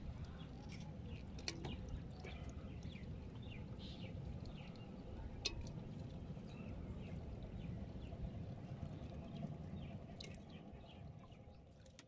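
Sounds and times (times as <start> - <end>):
water and wind rumble: 0.0 - 12.0
small birds chirping: 0.2 - 5.3.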